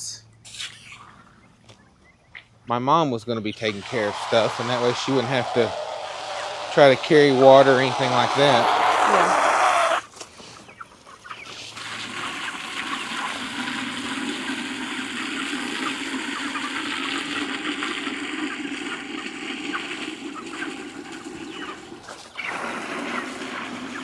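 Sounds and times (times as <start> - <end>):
chickens calling: 3.5 - 24.0
water from hose running into bucket: 3.6 - 10.0, 11.8 - 15.5.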